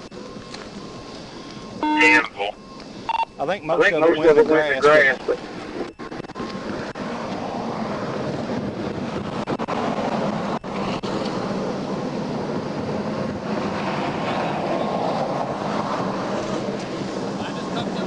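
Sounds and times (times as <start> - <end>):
highway traffic rushing: 0.0 - 18.0
wind on microphone: 5.4 - 18.0.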